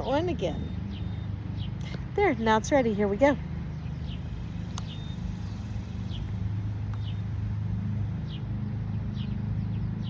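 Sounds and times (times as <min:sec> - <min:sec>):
electric mower motor humming: 0:00.0 - 0:10.0
high falling bird chirps: 0:03.5 - 0:07.4.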